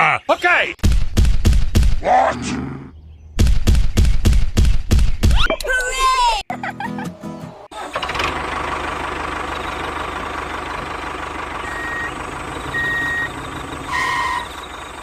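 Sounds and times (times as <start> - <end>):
vehicle engine running: 7.7 - 15.0.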